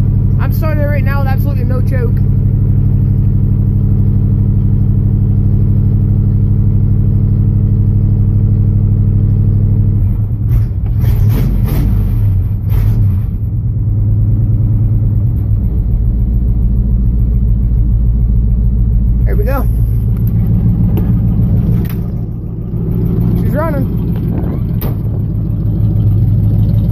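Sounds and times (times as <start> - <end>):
truck engine cranking and starting: 8.9 - 26.9.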